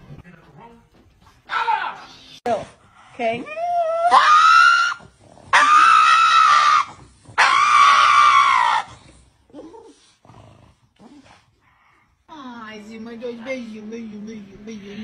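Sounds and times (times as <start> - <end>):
dog screaming high-pitched cries: 3.5 - 9.0.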